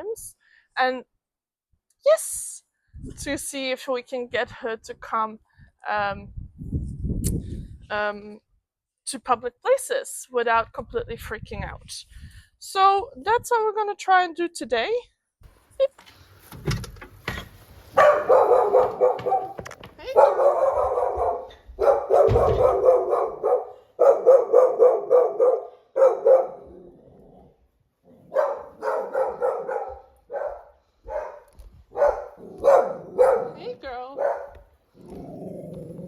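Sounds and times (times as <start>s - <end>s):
dog barking: 17.9s - 26.8s, 28.2s - 34.7s.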